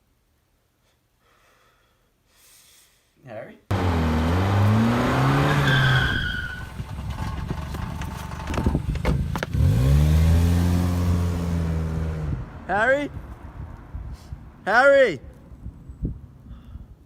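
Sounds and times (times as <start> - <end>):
car engine revving: 3.7 - 8.0, 9.5 - 12.5
short high squeal: 5.5 - 6.7.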